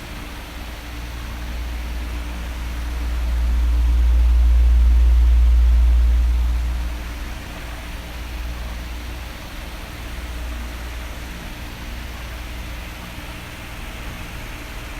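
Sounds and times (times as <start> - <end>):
electric fan running: 0.0 - 14.9
heavy low rumble: 1.3 - 9.3.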